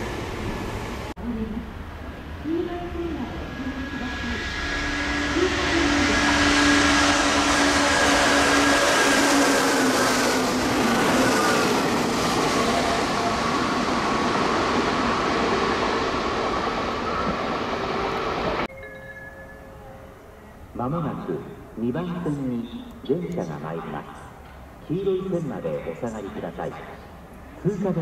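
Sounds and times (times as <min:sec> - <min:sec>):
train wheels rushing on rail: 0:00.0 - 0:01.1, 0:02.0 - 0:18.7
train running gear whine: 0:00.0 - 0:20.8.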